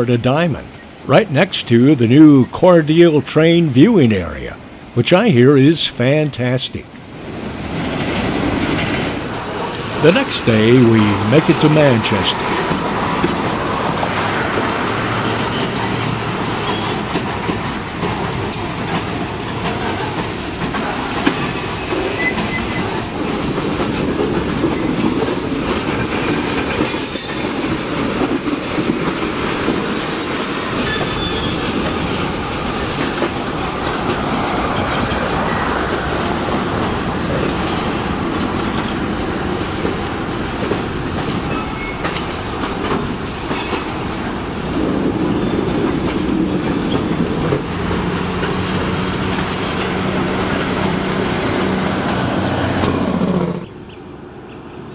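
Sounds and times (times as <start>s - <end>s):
freight train rumble: 0.0s - 54.9s
wheels clicking over rails: 12.4s - 53.7s
high wheel squeals: 16.6s - 17.1s, 21.8s - 22.9s, 30.0s - 31.7s, 41.5s - 42.2s.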